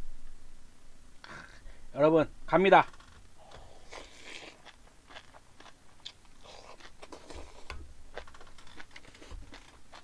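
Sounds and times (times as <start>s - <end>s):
chewing crisp bean sprouts: 3.5s - 10.0s.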